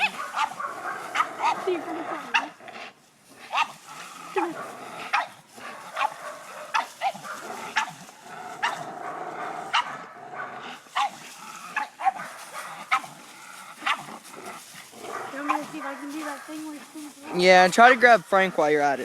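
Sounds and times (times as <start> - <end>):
dog barking in yips: 0.0 - 1.6.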